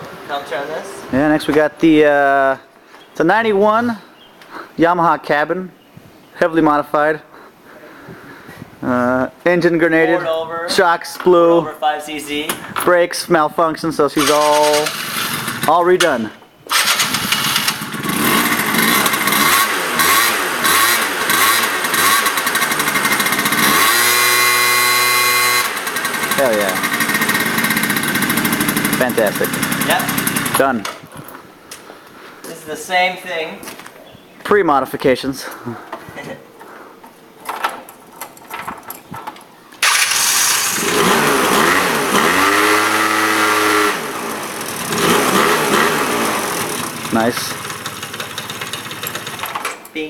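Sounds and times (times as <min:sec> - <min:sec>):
motorcycle engine revving: 0:14.2 - 0:15.8, 0:16.7 - 0:30.6, 0:39.8 - 0:49.6.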